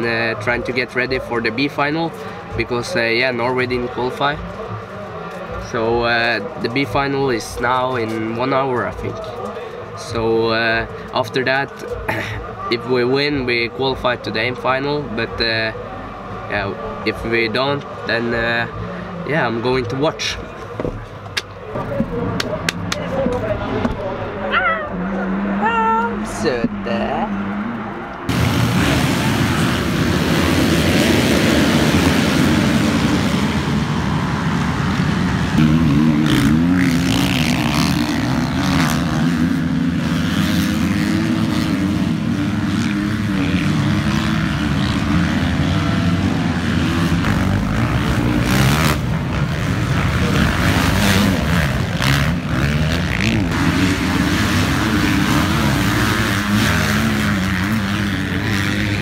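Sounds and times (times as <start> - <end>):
motocross bike engine racing: 0.0 - 59.0
rushing noise: 27.4 - 38.5.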